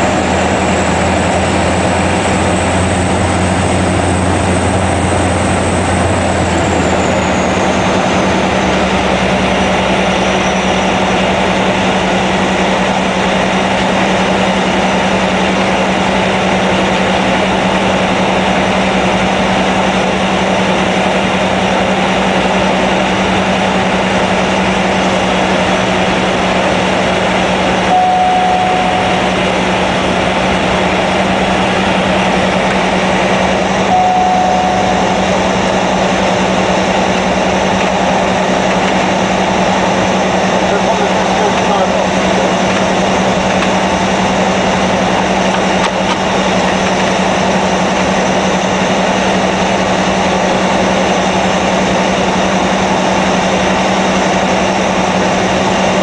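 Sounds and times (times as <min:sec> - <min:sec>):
turboprop engine whine: 0:00.0 - 0:56.0
short beep: 0:27.9 - 0:29.4, 0:33.9 - 0:35.4.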